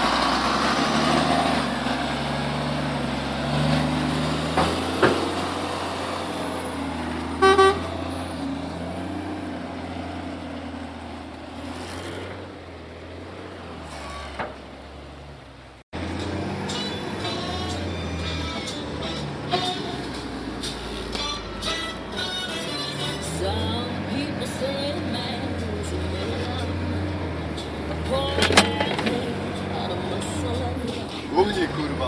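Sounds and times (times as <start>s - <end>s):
dump truck diesel engine: 0.0s - 32.0s
truck horn blast: 4.7s - 9.2s, 13.8s - 14.4s, 16.0s - 27.1s.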